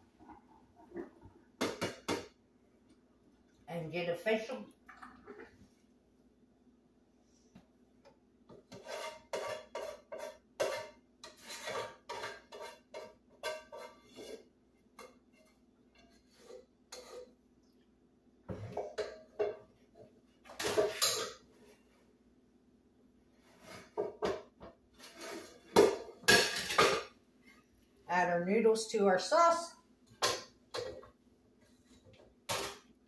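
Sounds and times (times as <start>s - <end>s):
metal utensils clattering on pans: 8.5s - 17.4s, 18.5s - 19.8s, 20.4s - 21.5s, 23.7s - 27.2s, 30.1s - 31.2s, 32.1s - 33.0s.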